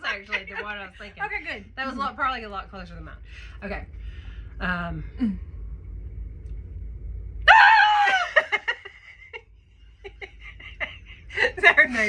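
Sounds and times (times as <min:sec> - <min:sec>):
woman squealing: 0:07.5 - 0:08.5.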